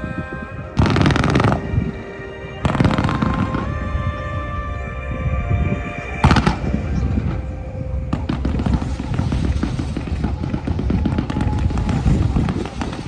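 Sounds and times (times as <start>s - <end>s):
music with held notes: 0.0s - 13.0s
fireworks booming and crackling: 0.8s - 2.0s, 2.6s - 3.9s, 6.2s - 13.0s.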